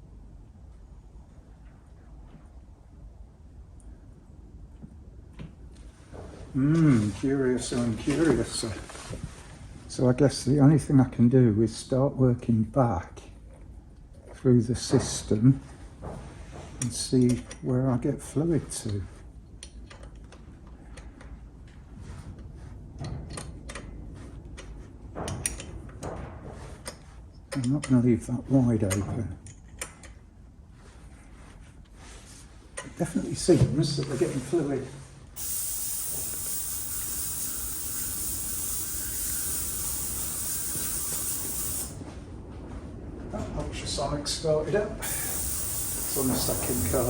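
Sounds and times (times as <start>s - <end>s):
ultrasonic cleaner hissing: 35.4s - 42.0s, 45.0s - 47.0s.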